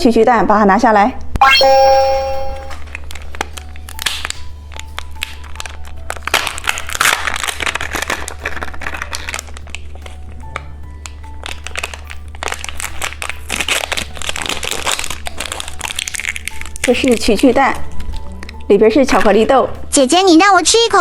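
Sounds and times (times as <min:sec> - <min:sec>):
faint background music: 0:00.0 - 0:21.0
plastic wrapper crinkling: 0:02.8 - 0:18.7.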